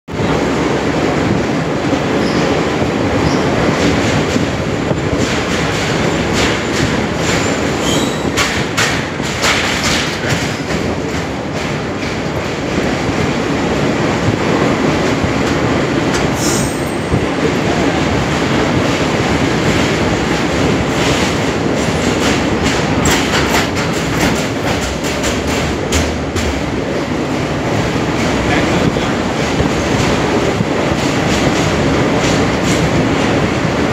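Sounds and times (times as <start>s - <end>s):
train wheels rumbling on rails: 0.1s - 33.9s
wheels clicking and clattering: 3.3s - 13.2s, 19.5s - 26.8s.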